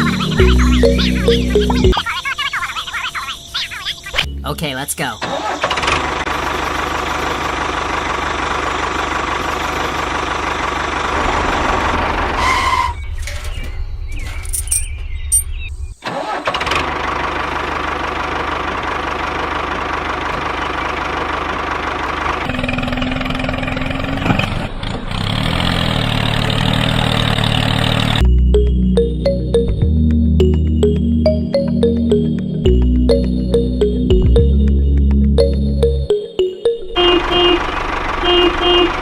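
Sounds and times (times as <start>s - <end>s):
tractor engine running: 5.4s - 15.4s, 16.0s - 39.0s.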